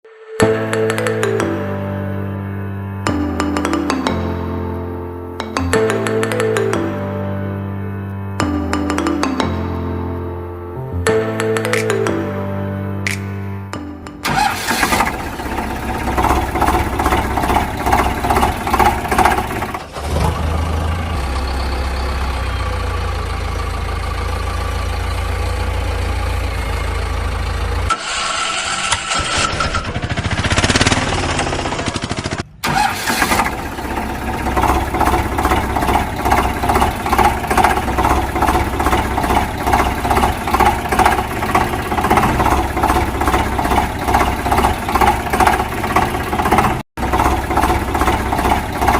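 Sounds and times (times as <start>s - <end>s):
vehicle engine chugging: 14.2s - 27.9s, 29.1s - 48.9s.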